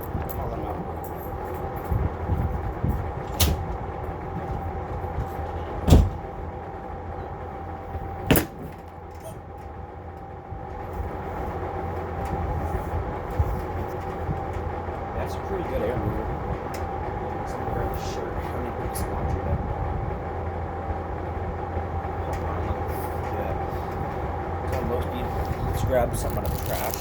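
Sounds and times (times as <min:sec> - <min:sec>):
box fan motor hum: 0:00.0 - 0:27.0
sharp knocks: 0:05.8 - 0:06.3, 0:08.3 - 0:08.8.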